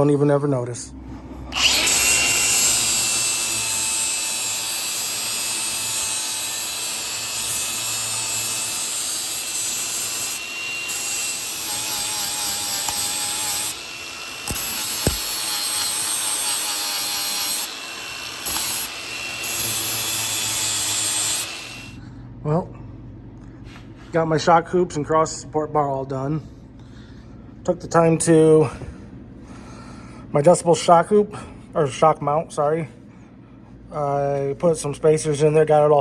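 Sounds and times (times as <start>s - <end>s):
angle grinder grinding steel: 1.5s - 22.0s.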